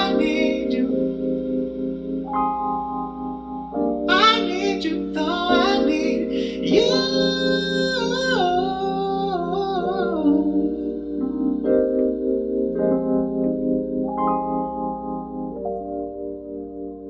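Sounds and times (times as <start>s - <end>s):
person singing wordless notes: 0.0s - 13.0s
sustained instrumental chords: 0.0s - 17.0s.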